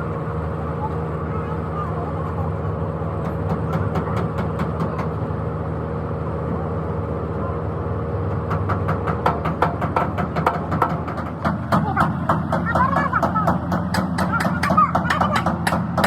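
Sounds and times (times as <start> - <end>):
engine running: 0.0 - 16.0
sharp metallic clicks and knocks: 8.3 - 16.0.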